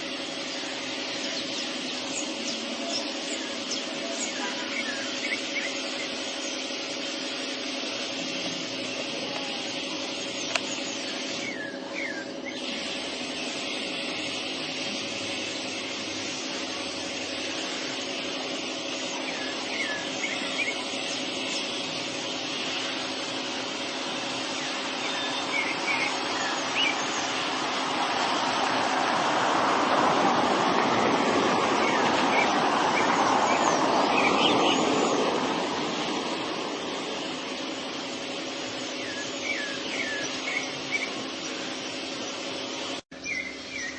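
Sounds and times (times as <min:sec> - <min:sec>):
sparrows chirping: 0:00.0 - 0:28.7, 0:31.4 - 0:43.9
steady hiss and low hum: 0:00.0 - 0:43.9
vehicle passing: 0:27.3 - 0:37.4.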